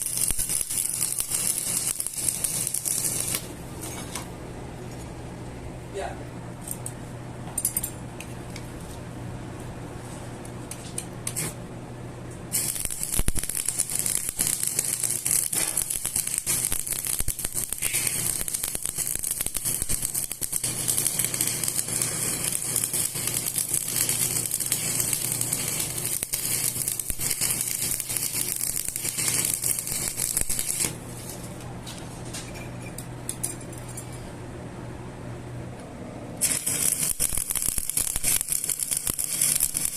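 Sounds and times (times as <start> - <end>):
harsh hissing metal cutting: 12.6 - 30.8.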